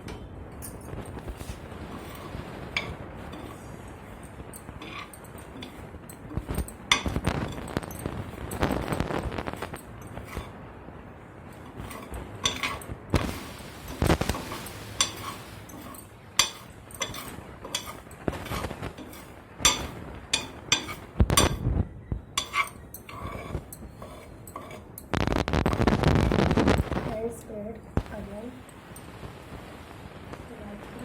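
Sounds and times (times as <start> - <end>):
spoon scraping a plate: 0.0 - 10.6, 11.5 - 21.6, 22.3 - 26.0.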